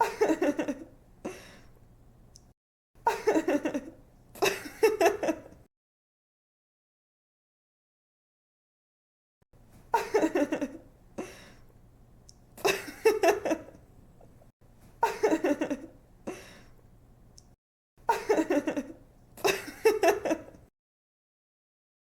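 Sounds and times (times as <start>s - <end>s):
young woman giggling: 0.0s - 0.9s, 9.9s - 10.8s, 15.0s - 16.4s, 18.1s - 20.6s.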